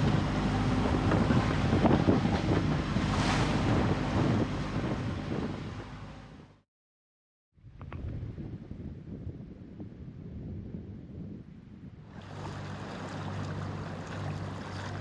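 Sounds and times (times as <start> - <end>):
wind buffeting microphone: 0.0 - 6.3, 7.6 - 15.0
water rushing past hull: 0.0 - 6.4, 12.1 - 15.0.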